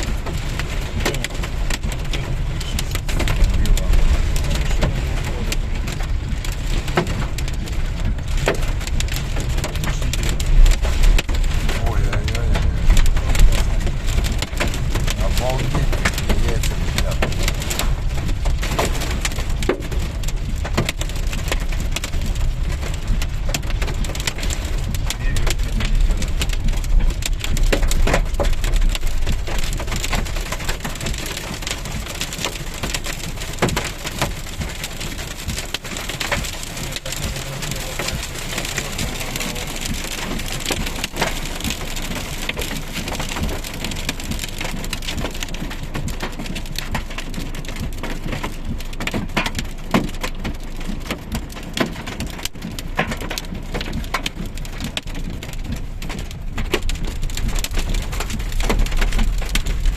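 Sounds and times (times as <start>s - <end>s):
heavy rain falling: 0.0s - 59.9s
low rumble: 0.0s - 59.9s.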